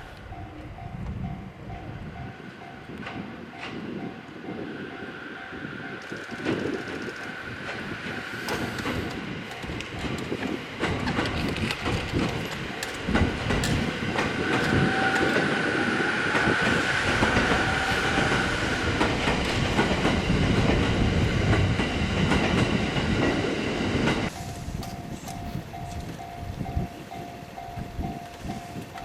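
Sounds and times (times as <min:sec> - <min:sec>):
train rumble: 0:00.0 - 0:29.0
train motor high whine: 0:04.6 - 0:10.4, 0:12.4 - 0:20.5
train wheels clicking over rail joints: 0:06.0 - 0:15.6, 0:16.2 - 0:29.0.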